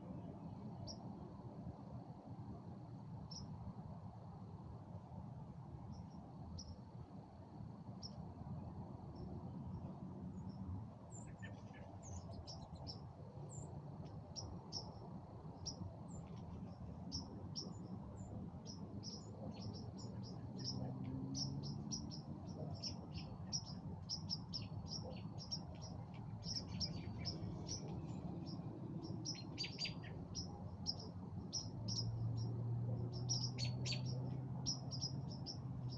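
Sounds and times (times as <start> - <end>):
outdoor background hiss: 0.0 - 35.9
small birds chirping: 9.2 - 35.9.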